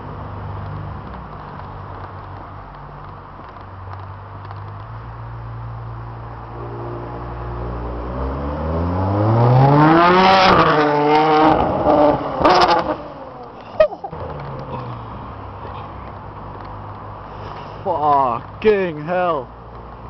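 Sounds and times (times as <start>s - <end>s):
sports car engine accelerating: 6.2s - 17.0s
exhaust crack: 6.2s - 18.8s.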